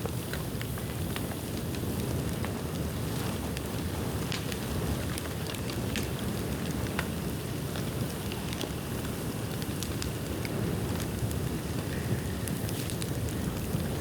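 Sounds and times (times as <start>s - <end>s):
bamboo bonfire crackling and popping: 0.0s - 14.0s
low fire rumble: 0.0s - 14.0s.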